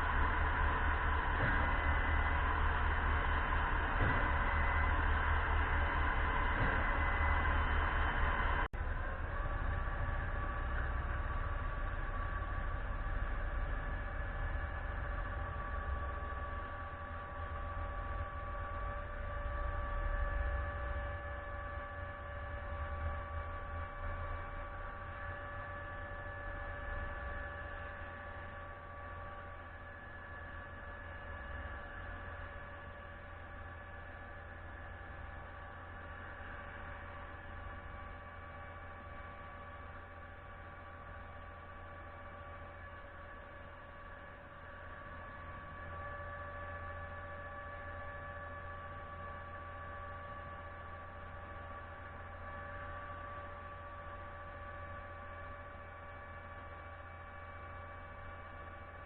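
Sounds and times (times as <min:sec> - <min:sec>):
pump truck machinery rumbling: 0:00.0 - 0:18.9
machinery whine: 0:00.0 - 0:59.0.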